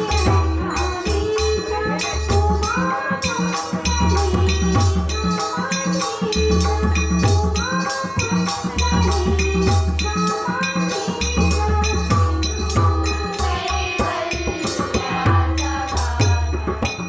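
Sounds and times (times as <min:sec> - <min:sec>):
held melody: 0:00.0 - 0:17.0
jingling percussion: 0:00.0 - 0:17.0
hand drum beat: 0:06.6 - 0:17.0.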